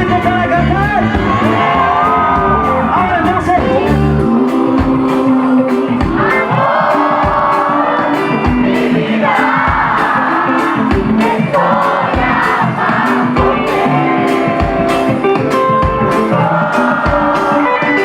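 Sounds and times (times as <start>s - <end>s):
kick drum beat: 0.0s - 1.6s, 2.3s - 2.7s, 4.8s - 5.1s, 6.0s - 7.6s, 8.4s - 8.9s, 9.6s - 10.2s, 10.9s - 11.4s, 12.1s - 13.8s, 14.5s - 15.1s, 17.1s - 17.5s
person singing: 0.0s - 18.0s
reggae band playing: 0.0s - 18.0s.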